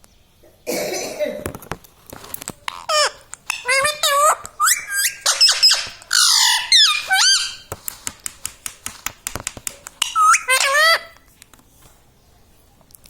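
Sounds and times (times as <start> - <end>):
parrot squawking and calling: 2.7 - 7.8, 8.4 - 11.3
sharp irregular clicks: 7.4 - 11.6.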